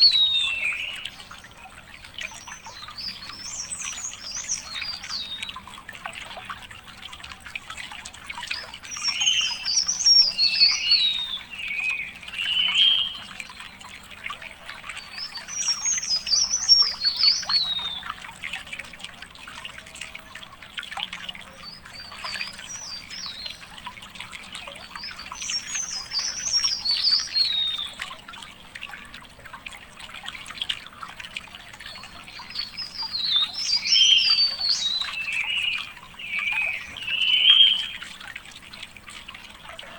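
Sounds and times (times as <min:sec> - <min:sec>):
songbird warbling: 0:00.0 - 0:05.8, 0:08.4 - 0:13.9, 0:14.8 - 0:18.3, 0:24.5 - 0:28.0, 0:31.8 - 0:38.4
faint trickle of water: 0:00.0 - 0:39.9.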